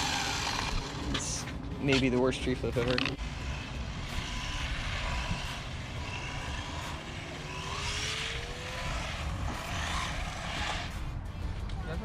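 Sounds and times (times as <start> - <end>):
electric motor whine: 0.0 - 1.2, 3.2 - 11.2.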